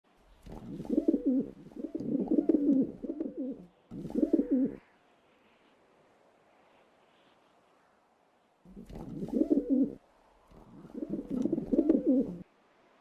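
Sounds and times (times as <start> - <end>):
pigeon cooing: 0.4 - 4.8, 8.7 - 12.4.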